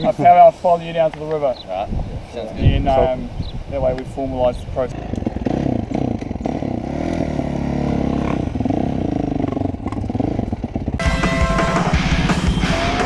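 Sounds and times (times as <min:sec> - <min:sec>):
dirt bike engine revving: 0:04.9 - 0:13.0.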